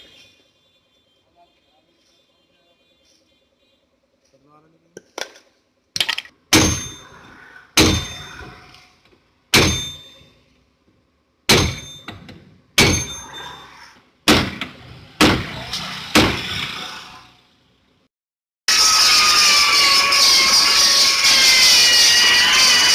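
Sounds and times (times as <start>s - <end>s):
hammer clanging on metal: 9.5s - 10.3s, 11.5s - 13.3s.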